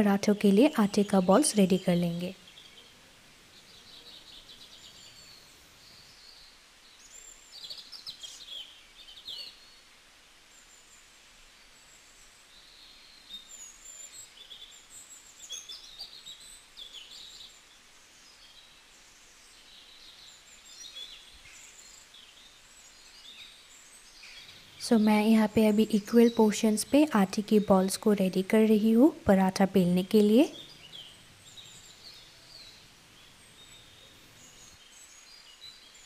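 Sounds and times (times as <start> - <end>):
low background hiss: 0.0 - 36.0
small birds chirping faintly: 0.0 - 36.0.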